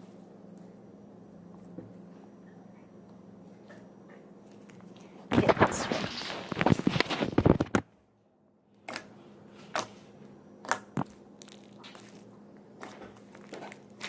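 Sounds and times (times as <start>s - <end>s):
slime squelch: 8.8s - 14.0s.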